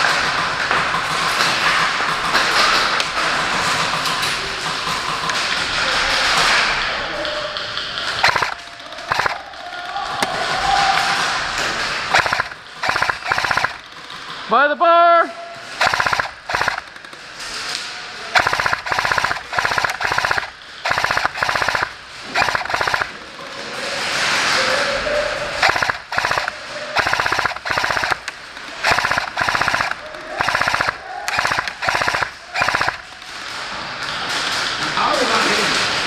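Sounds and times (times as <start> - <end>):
airsoft gun firing full-auto bursts: 8.2 - 9.5, 12.0 - 14.2, 15.7 - 17.1, 18.3 - 23.2, 25.6 - 33.3.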